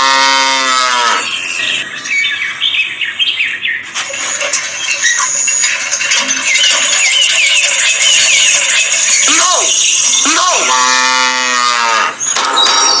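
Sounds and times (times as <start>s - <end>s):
pitched animal call: 0.0s - 1.6s, 10.4s - 12.2s
birds chirping: 0.0s - 13.0s.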